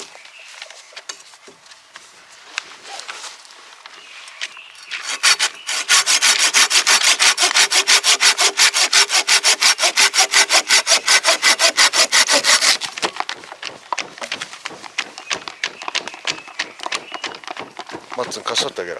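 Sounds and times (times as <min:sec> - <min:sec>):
hand saw cutting wood: 0:04.9 - 0:18.8.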